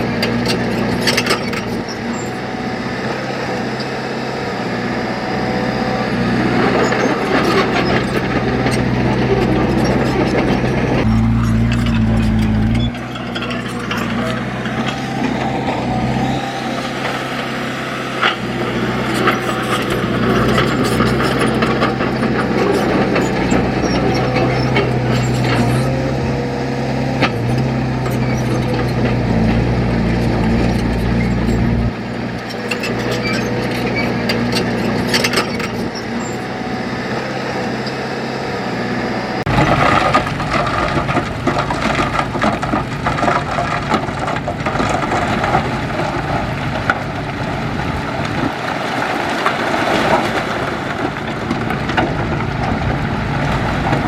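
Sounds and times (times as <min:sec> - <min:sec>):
heavy machinery engine running: 0:00.0 - 0:54.0
knocks and clanks: 0:39.5 - 0:54.0.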